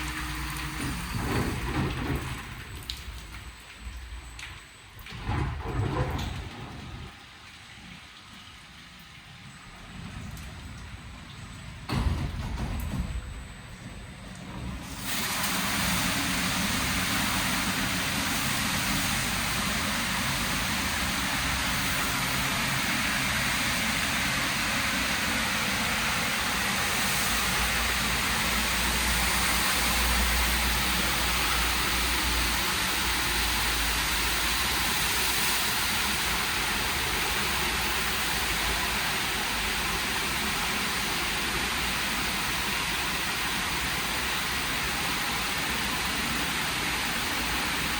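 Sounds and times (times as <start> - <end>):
water spraying onto car: 14.7 - 47.9.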